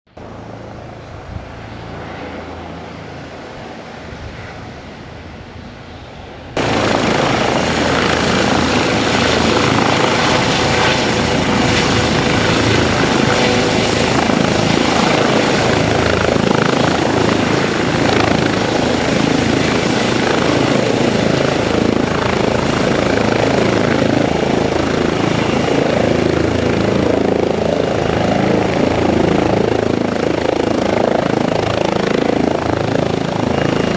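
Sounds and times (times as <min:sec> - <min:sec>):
helicopter rotor and engine: 0:00.1 - 0:33.9.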